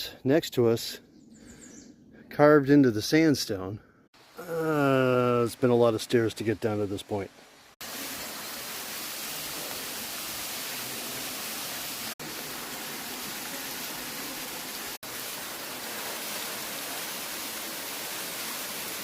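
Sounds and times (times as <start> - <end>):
waterfall rushing hiss: 4.2 - 19.0.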